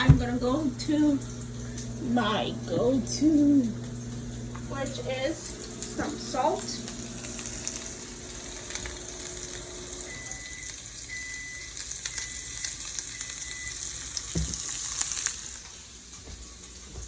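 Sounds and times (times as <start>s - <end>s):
dull knock: 0.0s - 0.5s, 14.4s - 14.6s
food sizzling in a pan: 0.0s - 17.0s.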